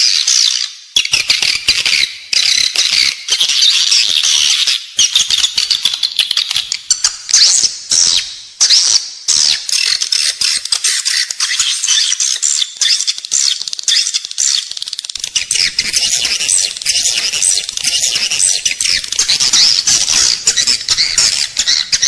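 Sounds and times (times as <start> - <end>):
swiftlets twittering: 15.2 - 22.0.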